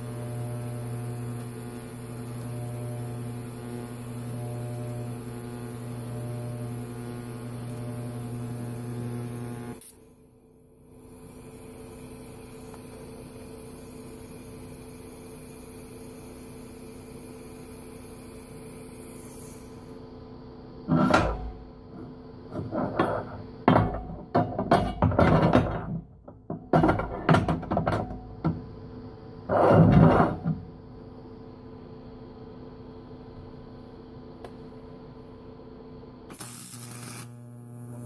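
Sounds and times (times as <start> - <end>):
welding arc humming and hissing: 0.0 - 26.0, 26.8 - 38.0
irregular knocks and clatter: 22.6 - 28.6.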